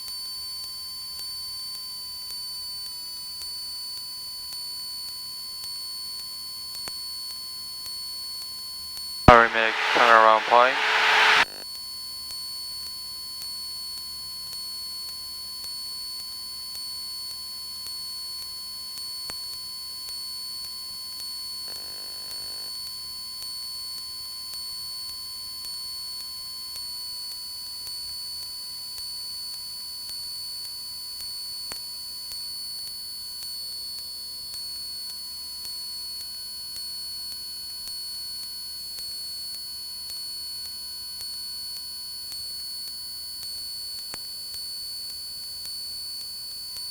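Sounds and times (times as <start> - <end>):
cockpit intercom electrical whine: 9.3 - 11.5
short burst of noise: 9.3 - 11.5.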